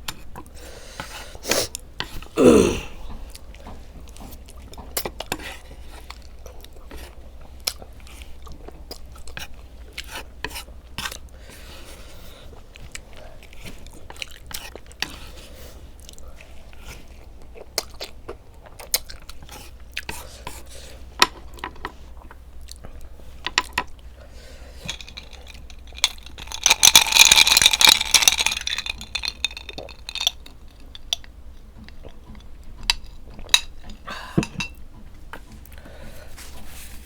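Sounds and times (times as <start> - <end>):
person chewing noodles: 1.4 - 10.3, 12.2 - 21.0.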